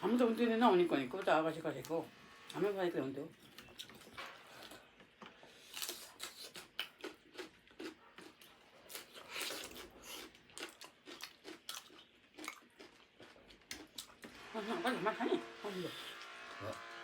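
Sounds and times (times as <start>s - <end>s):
people chewing and crunching food: 0.0s - 17.0s.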